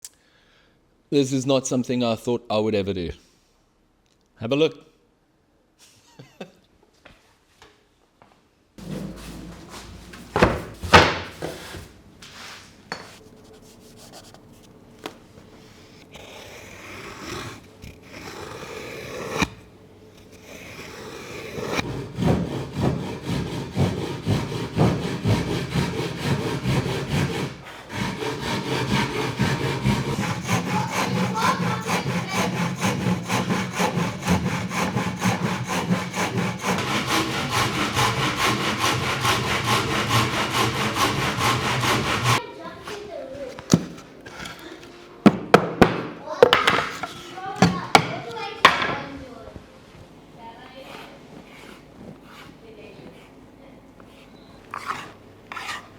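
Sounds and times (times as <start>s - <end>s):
wood knocking and handling: 8.8s - 11.8s, 43.5s - 49.1s
hand saw cutting wood: 15.9s - 43.0s, 43.7s - 44.9s, 46.4s - 49.1s, 50.6s - 53.4s, 54.1s - 55.9s.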